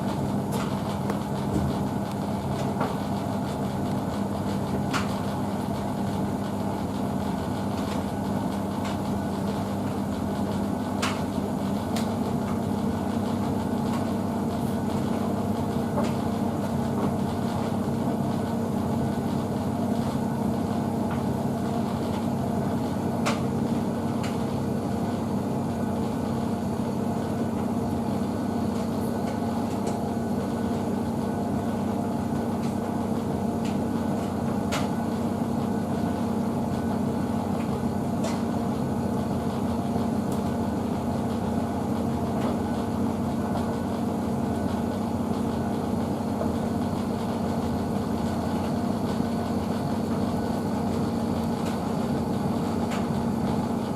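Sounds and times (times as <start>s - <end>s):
washing machine humming: 0.0s - 53.9s.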